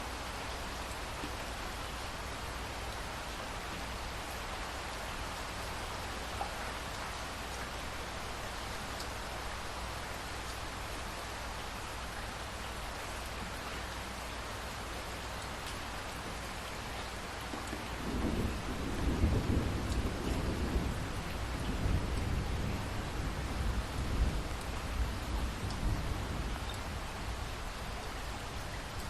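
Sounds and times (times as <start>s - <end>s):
steady rain falling: 0.0s - 29.0s
rolling thunder rumble: 18.0s - 26.6s.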